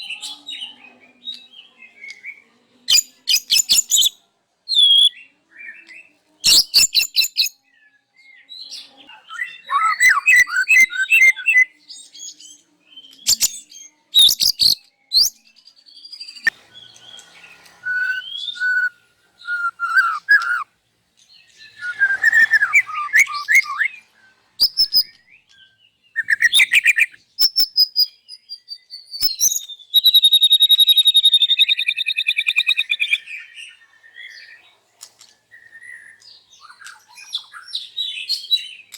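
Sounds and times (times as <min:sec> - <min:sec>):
bird singing: 0:06.7 - 0:34.7.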